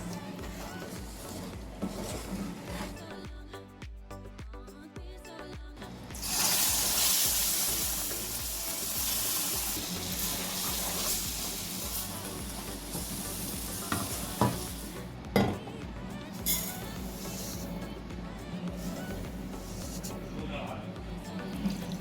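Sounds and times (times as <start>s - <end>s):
food sizzling in a hot pan: 6.1s - 15.5s, 16.3s - 17.9s, 18.7s - 20.3s.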